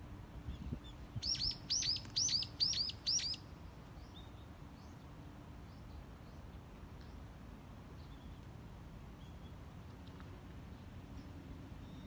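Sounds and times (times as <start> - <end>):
songbird singing: 0.0 - 12.0
faint bird chirps: 0.5 - 5.0.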